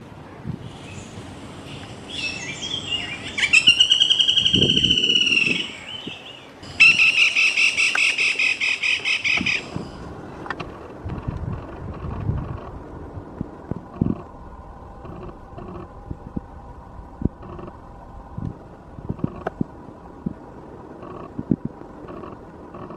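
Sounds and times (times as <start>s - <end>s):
woodpecker rattling call: 0.7s - 10.0s.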